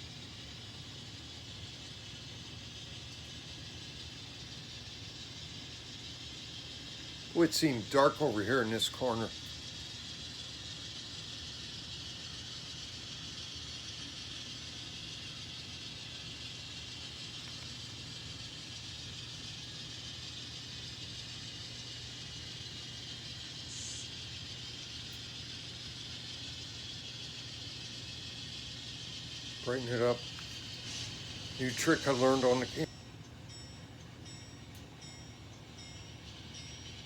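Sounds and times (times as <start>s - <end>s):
model train motor humming: 0.0s - 37.0s.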